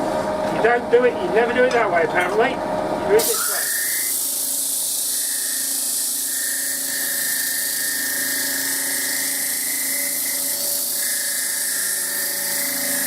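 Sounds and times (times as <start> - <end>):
sandpaper hissing on spinning wood: 3.2 - 13.0
wood lathe motor whine: 3.3 - 13.0.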